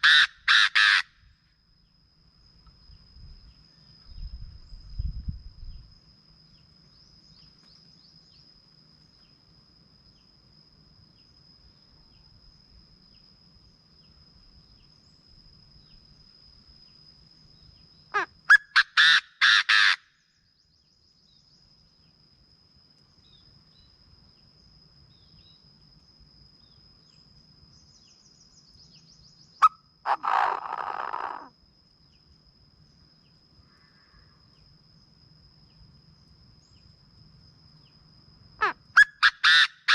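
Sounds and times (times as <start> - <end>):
bird calling harsh rapid notes: 0.0 - 1.0.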